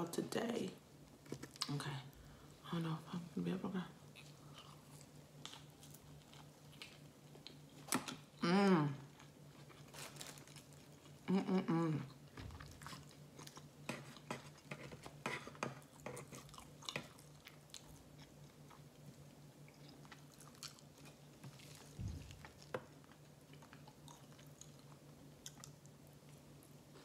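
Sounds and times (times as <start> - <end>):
faint steady hum: 0.0 - 27.0
person chewing: 4.1 - 8.4, 12.1 - 27.0
hummed voice sound: 8.4 - 9.1, 11.2 - 12.2.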